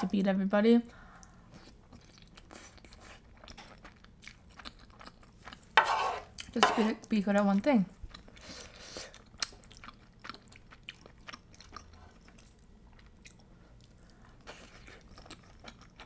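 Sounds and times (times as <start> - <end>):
close chewing with wet mouth clicks: 1.2 - 5.6, 8.0 - 16.0.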